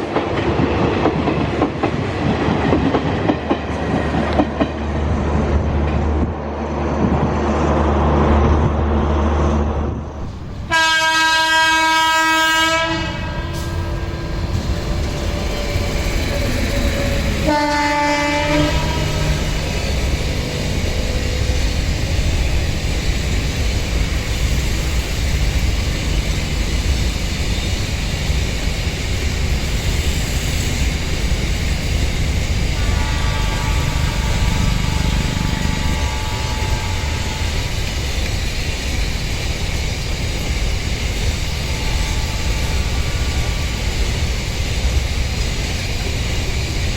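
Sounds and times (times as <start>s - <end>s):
passing train rumble: 0.0s - 46.9s
locomotive horn blasts: 10.7s - 14.6s, 17.4s - 19.7s, 32.8s - 37.8s.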